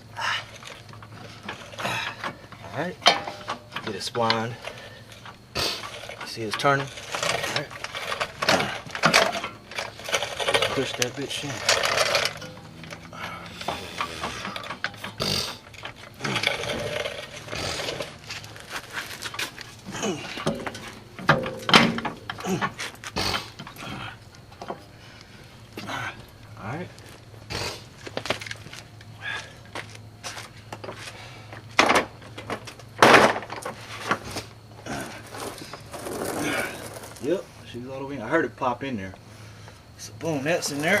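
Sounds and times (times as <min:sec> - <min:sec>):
faint steady hum: 0:00.0 - 0:41.0
metal clicks and knocks: 0:00.7 - 0:18.1, 0:20.4 - 0:23.0
loud metal knocks: 0:20.4 - 0:22.4.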